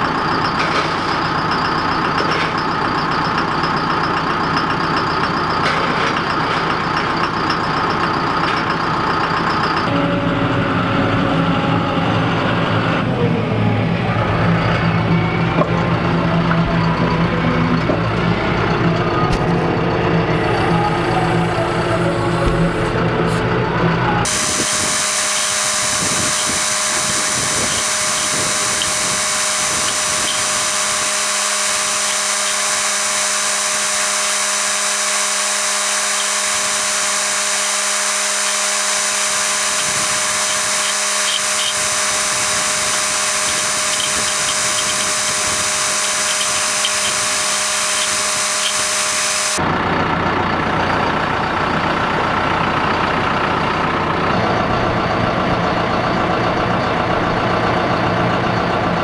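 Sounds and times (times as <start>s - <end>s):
high-pitched machine whine: 9.8s - 49.7s.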